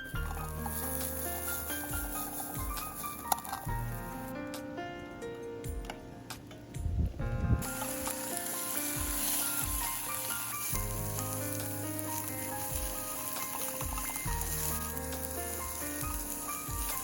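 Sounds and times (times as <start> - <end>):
food sizzling in a pan: 0.0 - 4.3, 7.6 - 17.0
background music: 0.0 - 17.0.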